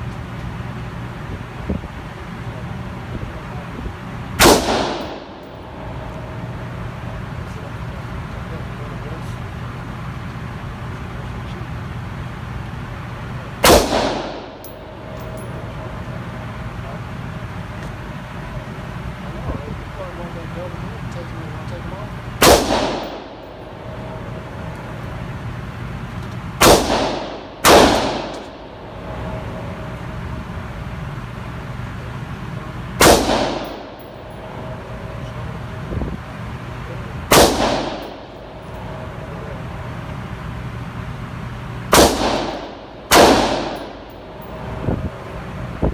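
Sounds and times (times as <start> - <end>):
steady low rumble: 0.0 - 45.9
gunshot with echo: 4.4 - 5.5, 13.6 - 14.7, 22.4 - 23.4, 26.6 - 28.6, 33.0 - 34.0, 37.3 - 38.4, 41.9 - 44.1.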